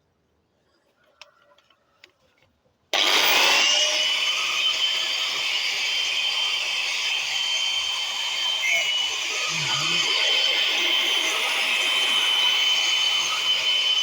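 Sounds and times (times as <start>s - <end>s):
angle grinder cutting steel: 3.0s - 14.0s.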